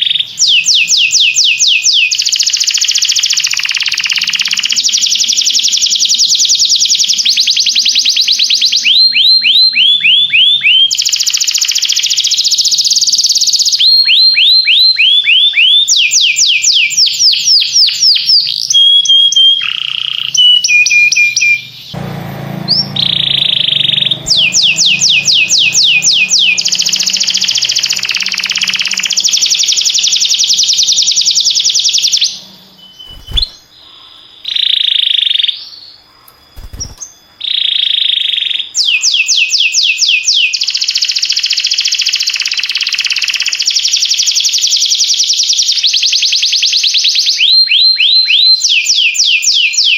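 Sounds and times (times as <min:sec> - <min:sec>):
canary singing trills: 0:00.0 - 0:49.9.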